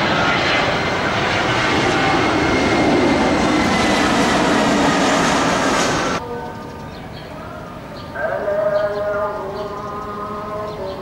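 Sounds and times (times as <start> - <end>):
jet engines whining overhead: 0.0 - 8.0.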